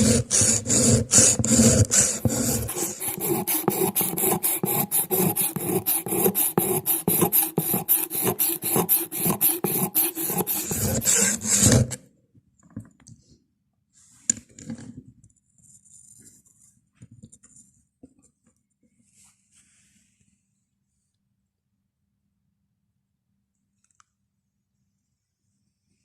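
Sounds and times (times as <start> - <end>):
hand file strokes on steel: 0.0 - 12.0.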